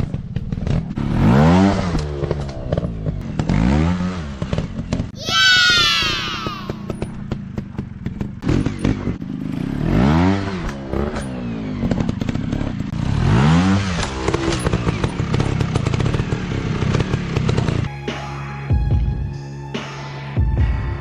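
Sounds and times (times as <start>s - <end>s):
dirt bike engine revving: 0.3s - 17.9s.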